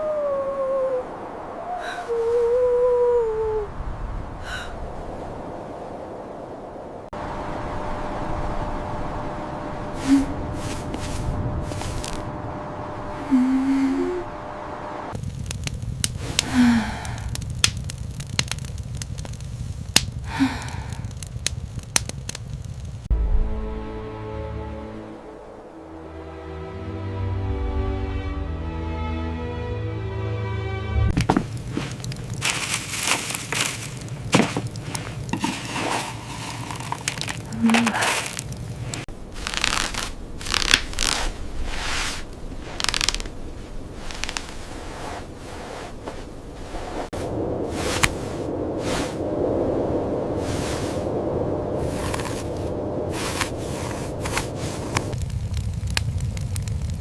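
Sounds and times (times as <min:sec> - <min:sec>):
low steady rumble: 0:02.2 - 0:30.2, 0:31.0 - 0:57.0
fire crackling and popping: 0:09.9 - 0:12.6, 0:15.1 - 0:23.1, 0:31.1 - 0:57.0
music: 0:23.1 - 0:31.2.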